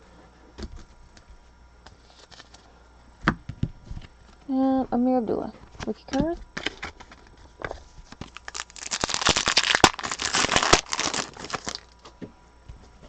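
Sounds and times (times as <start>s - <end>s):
foil wrapper tearing and crinkling: 8.1s - 12.0s.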